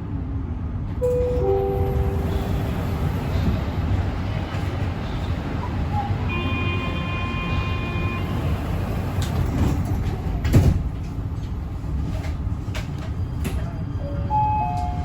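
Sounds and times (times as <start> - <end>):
metro train car rumbling: 0.0 - 15.0.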